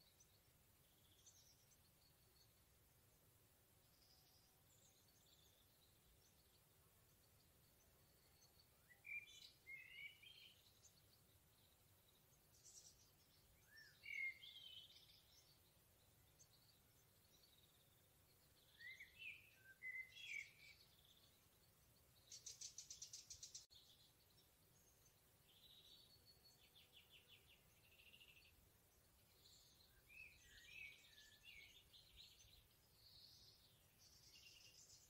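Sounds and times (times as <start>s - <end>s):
songbirds warbling: 0.0s - 35.0s
bird trill: 12.5s - 15.6s, 18.6s - 21.5s.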